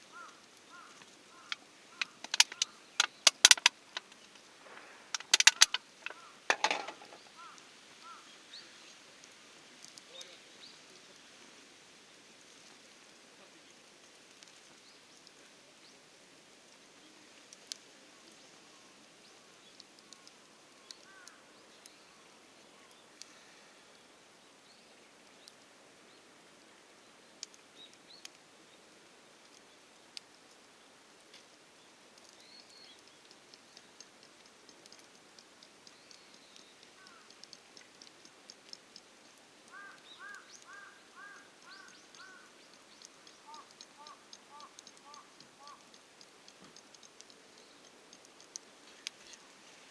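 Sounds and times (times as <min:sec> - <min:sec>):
campfire crackling: 0:00.0 - 0:49.9
faint steady hiss: 0:00.0 - 0:49.9
birds calling: 0:00.1 - 0:08.3, 0:35.8 - 0:38.3, 0:39.7 - 0:46.9
bird chirping: 0:00.2 - 0:07.6, 0:35.8 - 0:38.3, 0:39.7 - 0:49.5.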